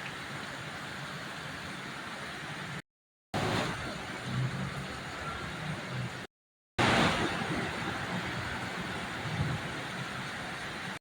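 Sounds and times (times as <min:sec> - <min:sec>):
heavy rain pouring: 0:03.4 - 0:11.0.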